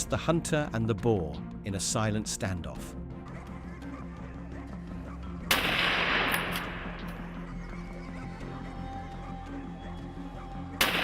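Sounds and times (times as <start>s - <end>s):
background music: 0.0s - 11.0s
gunshot echo: 5.5s - 7.1s.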